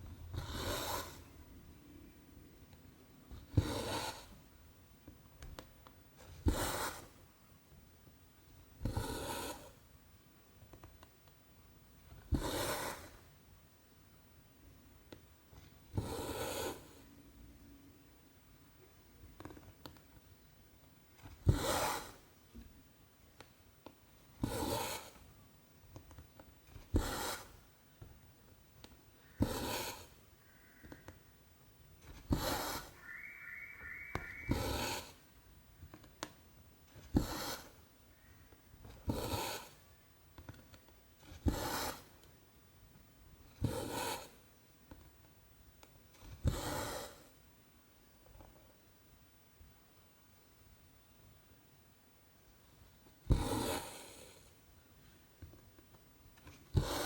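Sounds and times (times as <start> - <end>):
thread rasping through canvas: 24.2 - 25.3, 25.9 - 28.2, 28.8 - 31.2, 32.0 - 33.2, 34.2 - 37.9, 38.8 - 42.3, 56.4 - 57.0.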